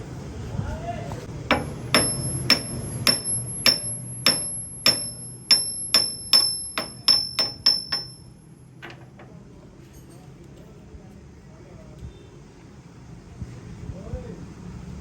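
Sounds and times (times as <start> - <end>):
hammer striking steel: 1.5 - 9.3.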